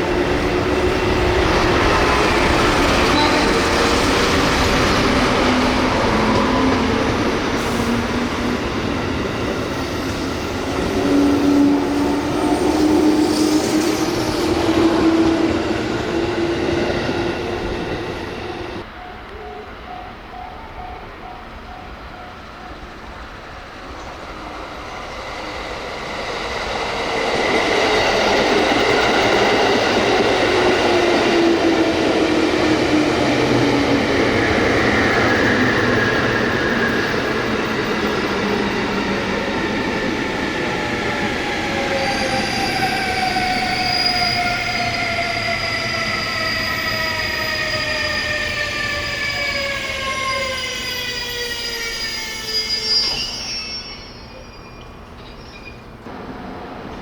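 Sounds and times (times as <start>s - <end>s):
brake and wheel squeal: 46.1s - 55.9s.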